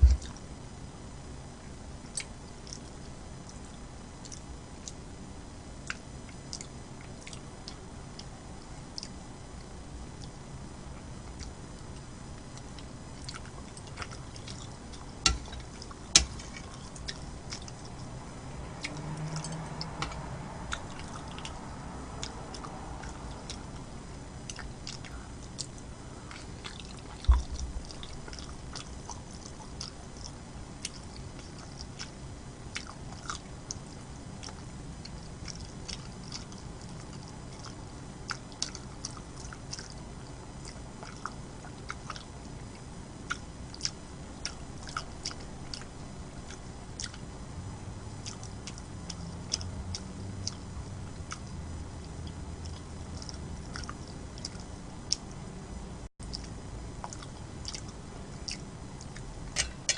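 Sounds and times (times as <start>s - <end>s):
person chewing food: 5.8s - 8.3s, 8.9s - 10.4s, 11.2s - 47.3s, 48.2s - 55.3s, 56.2s - 59.9s
wet mouth clicks: 56.2s - 59.7s.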